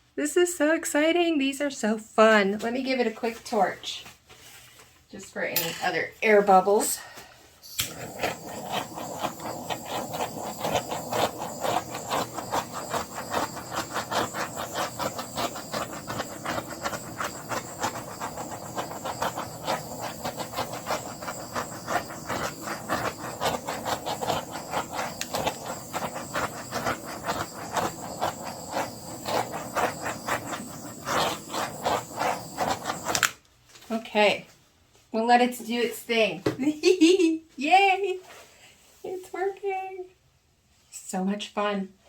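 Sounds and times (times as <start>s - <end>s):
torch flame hissing: 7.6s - 33.4s
fast crackle of bubbles: 7.7s - 33.3s.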